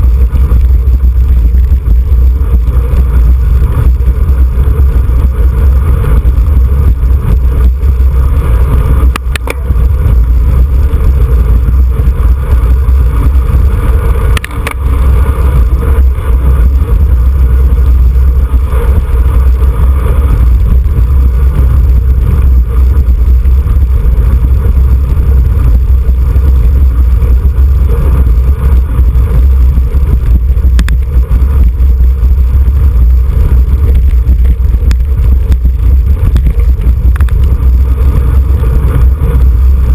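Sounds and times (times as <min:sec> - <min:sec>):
wind buffeting microphone: 0:00.0 - 0:39.9
click: 0:09.1 - 0:09.6, 0:14.4 - 0:14.8.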